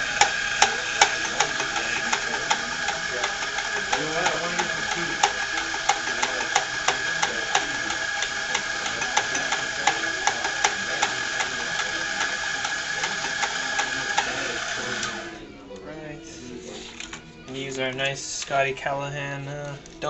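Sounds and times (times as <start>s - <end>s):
coffee grinder whine: 0.0s - 15.6s
regular clicking: 0.0s - 15.8s.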